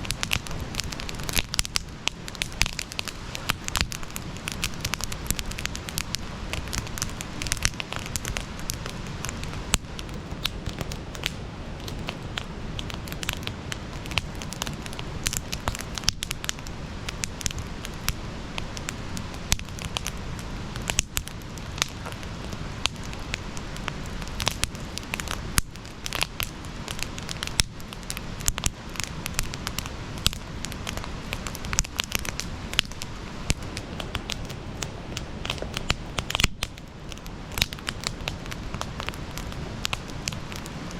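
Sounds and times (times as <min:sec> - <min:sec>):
campfire crackling and popping: 0:00.0 - 0:40.9
steady hiss: 0:00.0 - 0:40.9.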